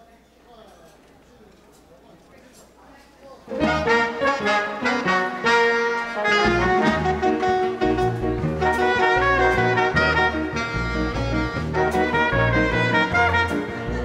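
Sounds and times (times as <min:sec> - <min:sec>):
dance band playing rumba: 0:03.5 - 0:14.0.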